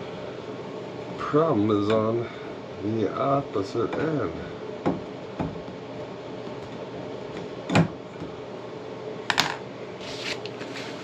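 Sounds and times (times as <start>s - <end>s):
steady low hum: 0.0s - 11.0s
plumbing tools clicking and knocking: 3.9s - 4.2s.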